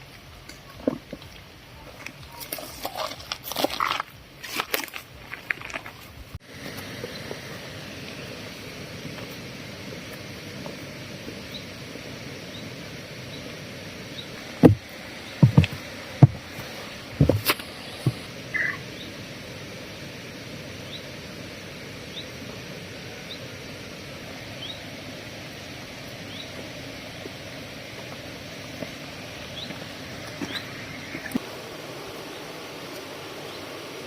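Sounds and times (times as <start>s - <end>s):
outdoor background hiss: 0.0s - 34.0s
sharp knocks and thumps: 14.6s - 16.6s, 17.2s - 18.3s
faint high chirp: 18.5s - 19.1s.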